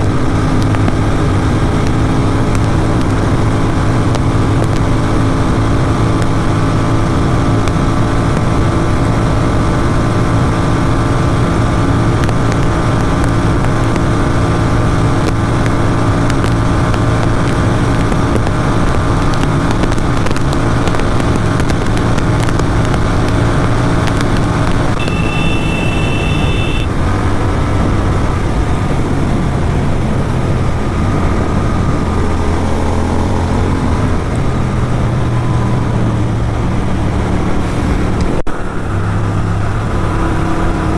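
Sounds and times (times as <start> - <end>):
motorcycle engine running: 0.0 - 40.9
wind and road noise: 0.0 - 40.9
horn sounding: 24.9 - 27.0.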